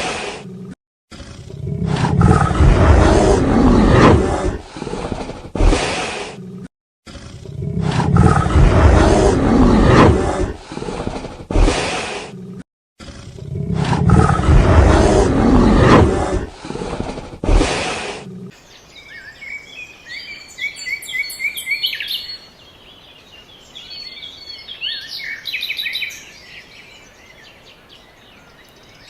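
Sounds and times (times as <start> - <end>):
animal roaring: 0.0 - 18.6.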